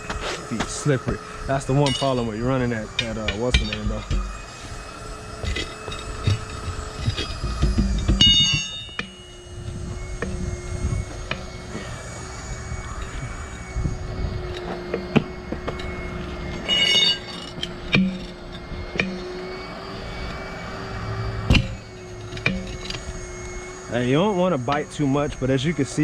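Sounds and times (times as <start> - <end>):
rubber squealing against steel: 16.6 - 17.5.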